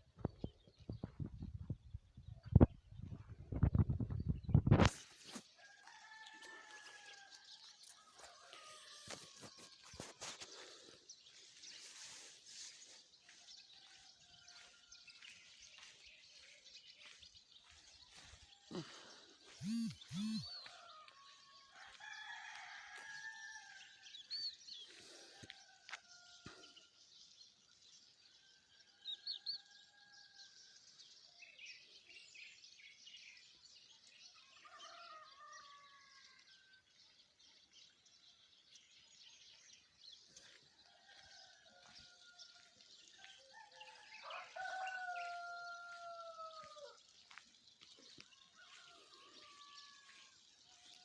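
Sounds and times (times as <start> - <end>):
small birds chirping: 0.0 - 27.8, 31.0 - 51.0
rooster crowing: 5.6 - 10.1, 19.5 - 24.0, 40.9 - 42.7, 43.4 - 47.4, 48.4 - 51.0.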